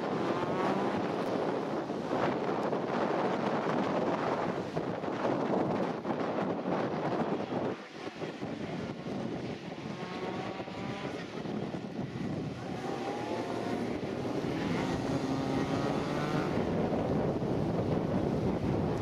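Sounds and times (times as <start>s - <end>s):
wind noise on microphone: 0.0s - 19.0s
car engine revving hard: 12.6s - 16.8s.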